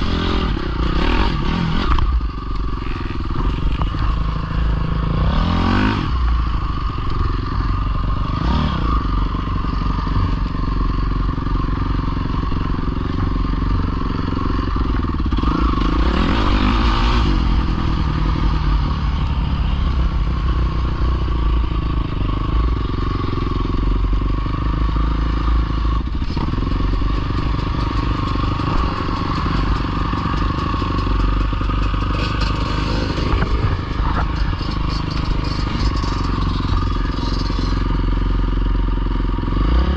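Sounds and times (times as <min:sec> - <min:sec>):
dirt bike engines revving: 0:00.0 - 0:38.7.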